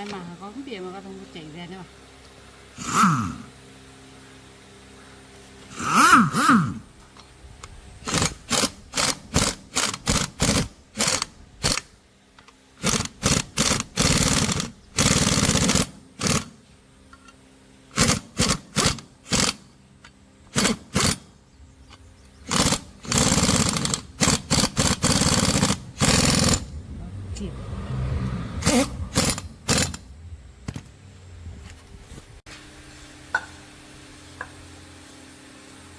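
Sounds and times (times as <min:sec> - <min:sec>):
power tool bursts: 0:02.8 - 0:03.5, 0:05.7 - 0:06.8, 0:08.0 - 0:11.9, 0:12.8 - 0:16.6, 0:17.9 - 0:19.7, 0:20.5 - 0:21.3, 0:22.4 - 0:26.7, 0:28.6 - 0:30.1.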